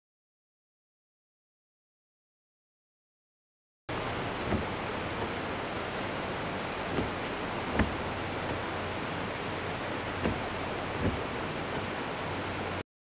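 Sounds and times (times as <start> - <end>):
car engine idling: 3.9 - 12.8
noisy rush: 3.9 - 12.8
faint knocks: 4.4 - 5.4.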